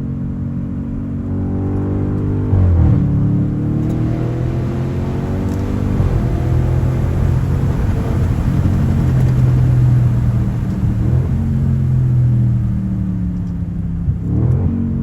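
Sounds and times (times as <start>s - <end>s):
car exhaust drone: 0.0s - 15.0s.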